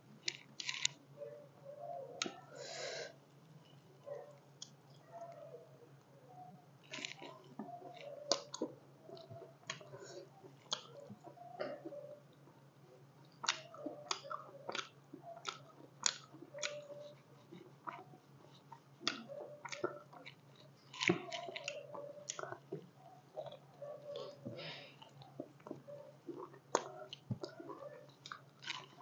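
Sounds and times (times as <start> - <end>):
person chewing food: 0.2 - 1.0, 6.8 - 12.6, 13.2 - 29.0.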